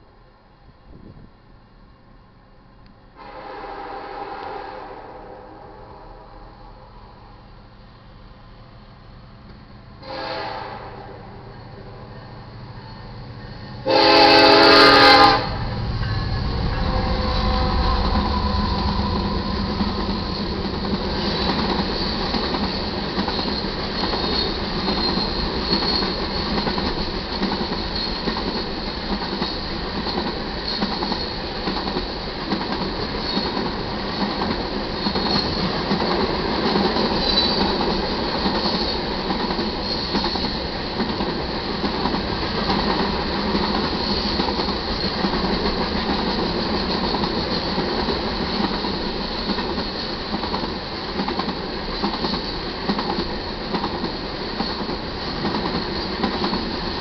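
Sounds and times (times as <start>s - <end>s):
locomotive horn: 3.2s - 6.4s, 10.0s - 11.4s, 13.8s - 19.5s
locomotive rumble: 11.5s - 28.1s
rail joints clicking: 15.8s - 57.0s
high wheel squeal: 37.2s - 37.7s.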